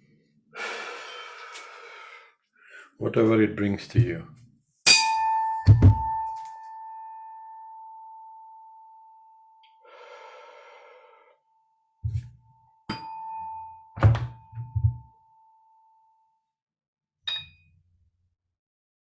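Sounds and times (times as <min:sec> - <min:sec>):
bell-like tone ringing: 0:04.9 - 0:09.6, 0:12.5 - 0:16.2
soft low knocks: 0:14.0 - 0:15.1.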